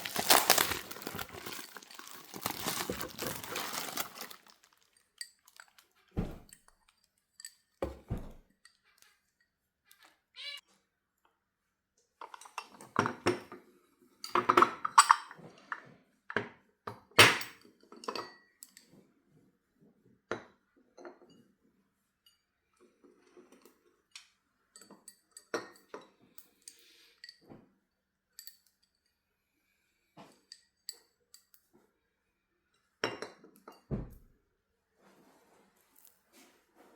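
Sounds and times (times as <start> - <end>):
teacups clinking: 0.0 - 5.8
dull thump of cup set down: 6.2 - 6.5.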